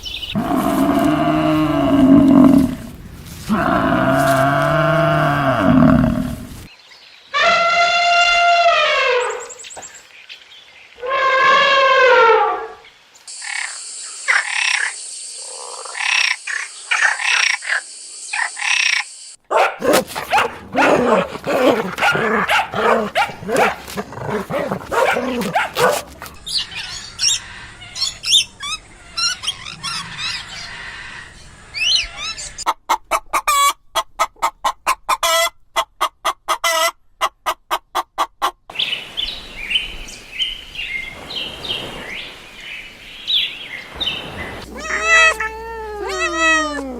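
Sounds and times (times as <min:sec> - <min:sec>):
birds chirping: 0:00.0 - 0:02.8, 0:38.7 - 0:46.9
fast repeated animal calls: 0:44.6 - 0:46.9.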